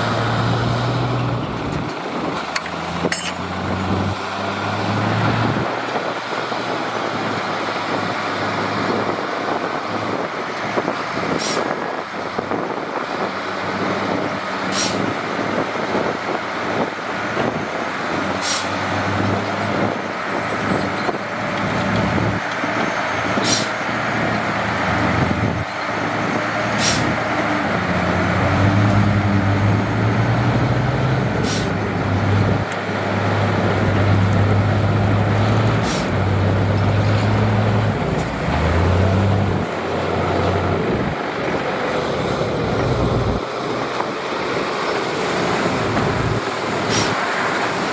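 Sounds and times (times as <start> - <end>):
diesel machinery running: 0.0 - 47.9
sharp metal clanks: 2.5 - 3.6.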